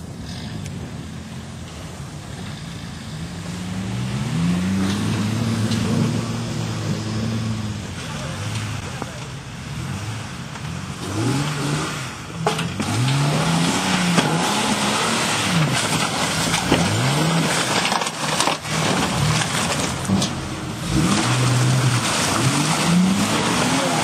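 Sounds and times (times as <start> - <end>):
engine revving: 2.3 - 24.0.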